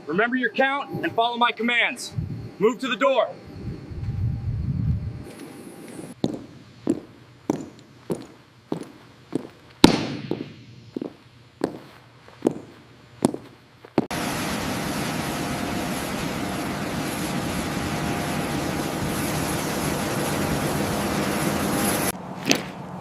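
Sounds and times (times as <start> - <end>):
aircraft engine drone: 0.0 - 6.8, 14.1 - 22.2
footsteps on hard floor: 10.9 - 14.1.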